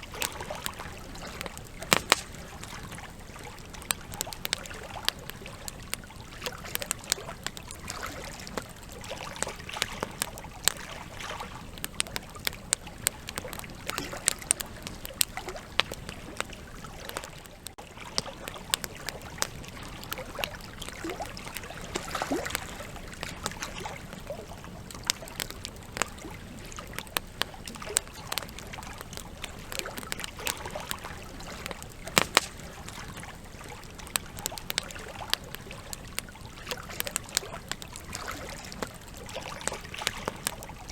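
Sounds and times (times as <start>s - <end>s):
campfire crackling and popping: 0.0s - 40.9s
hiss of flame: 1.6s - 3.0s, 31.6s - 33.5s.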